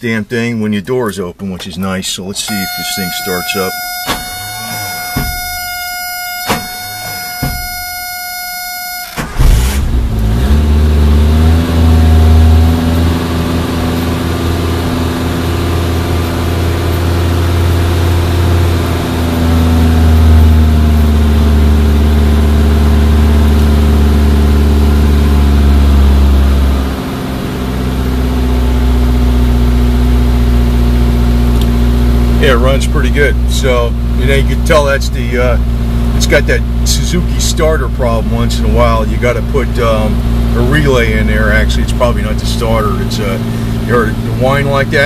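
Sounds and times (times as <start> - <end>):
car engine fast idle: 2.6 - 10.9, 35.6 - 45.0.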